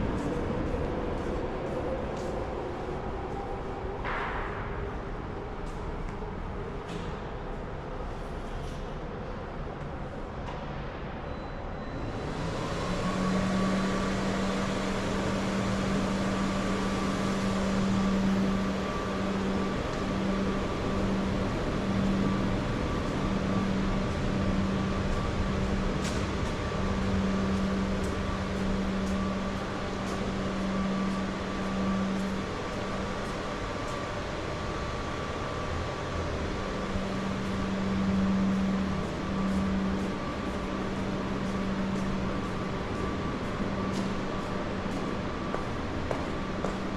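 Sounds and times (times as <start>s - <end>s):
machine drone with high whine: 0.0s - 46.9s
city noise hiss: 12.1s - 46.9s.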